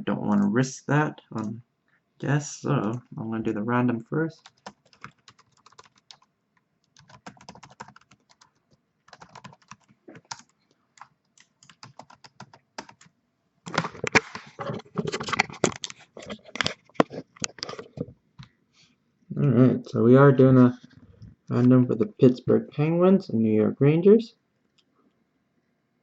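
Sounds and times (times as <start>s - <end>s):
typing on a computer keyboard: 4.4s - 13.1s.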